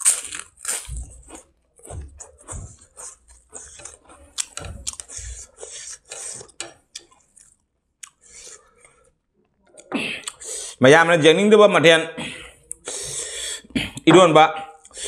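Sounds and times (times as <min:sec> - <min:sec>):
person chewing: 0:00.0 - 0:10.8, 0:12.3 - 0:14.1
fingers mixing rice on a plate: 0:01.3 - 0:07.5.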